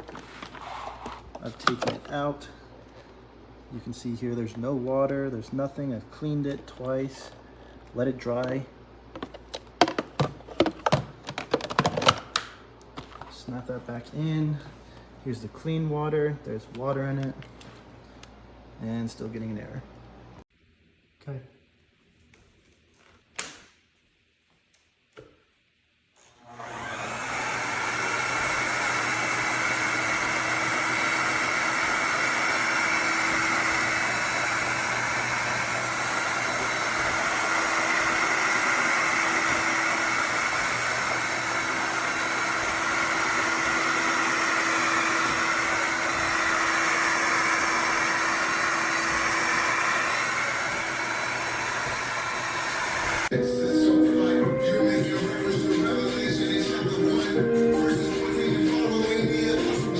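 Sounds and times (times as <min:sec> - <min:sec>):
vacuum mop motor whirring: 0:00.0 - 0:02.1, 0:26.2 - 0:53.3.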